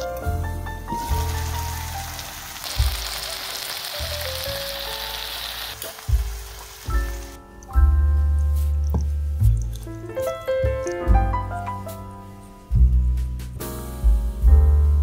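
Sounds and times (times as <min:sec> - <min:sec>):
food sizzling in a frying pan: 0:00.0 - 0:07.4
background music with bass line: 0:04.1 - 0:15.0.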